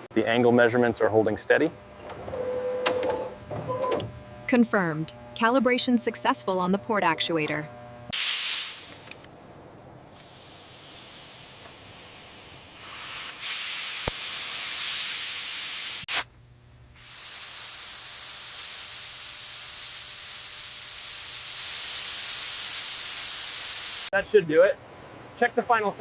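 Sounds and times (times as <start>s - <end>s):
pressurized spray hissing: 8.1s - 9.0s, 10.1s - 16.2s, 17.0s - 24.1s.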